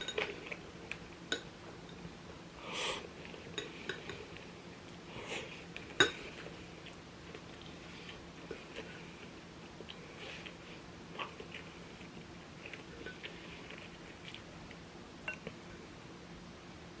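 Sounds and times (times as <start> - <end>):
utensils clinking against bowl: 0.0 - 0.6, 1.3 - 2.1, 3.5 - 4.4, 5.9 - 6.5, 13.0 - 13.4.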